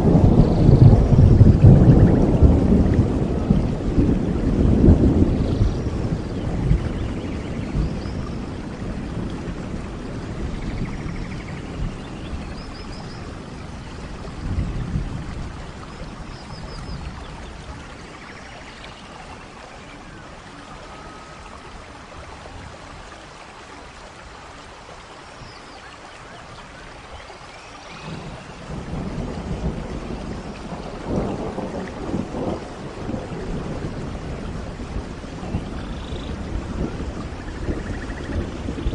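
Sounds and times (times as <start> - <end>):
rolling thunder: 0.0 - 18.2, 27.9 - 38.9
steady rain: 0.0 - 38.9.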